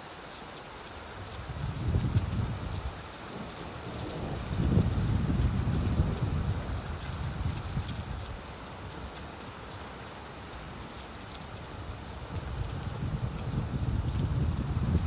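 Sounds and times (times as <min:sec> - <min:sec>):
rain falling: 0:00.0 - 0:15.0
low thunder rumble: 0:03.9 - 0:07.8, 0:12.4 - 0:15.0.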